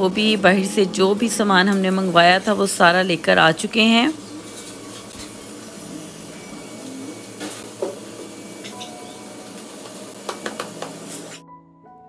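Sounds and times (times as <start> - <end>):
light rain hissing: 1.8 - 11.4.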